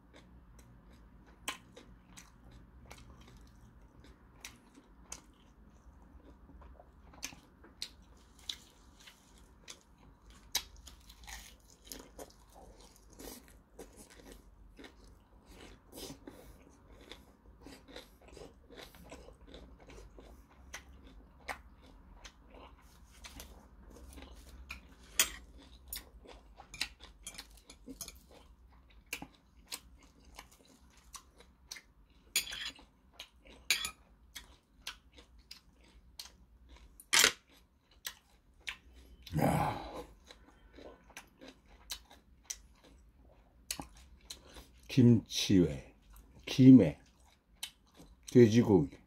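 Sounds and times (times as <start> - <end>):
man chewing food: 0.0 - 45.0, 45.8 - 49.0
short throat vocal sound: 39.3 - 40.1.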